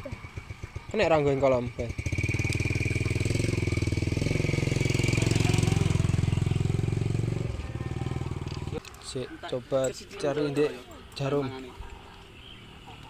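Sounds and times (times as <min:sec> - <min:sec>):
motorcycle engine fast idle: 0:00.0 - 0:08.8.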